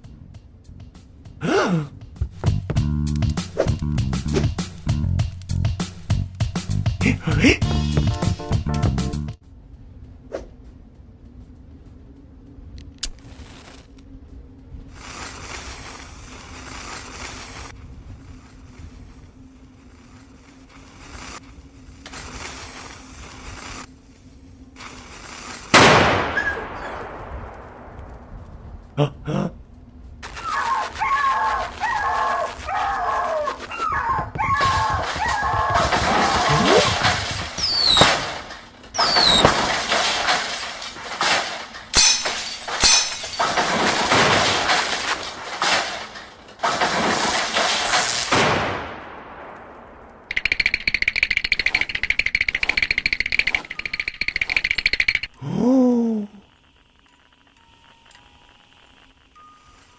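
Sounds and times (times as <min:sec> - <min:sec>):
falling high squeals: 0:30.3 - 0:38.4, 0:39.0 - 0:39.8
cartoon crashing and smashing: 0:34.5 - 0:48.9
breaking glass: 0:36.0 - 0:48.5
faint hiss: 0:55.3 - 0:59.9.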